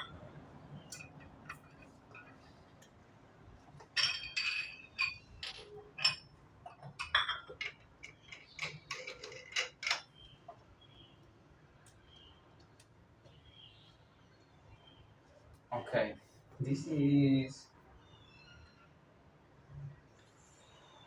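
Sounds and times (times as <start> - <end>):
hard objects clinking and tapping: 3.8 - 10.1.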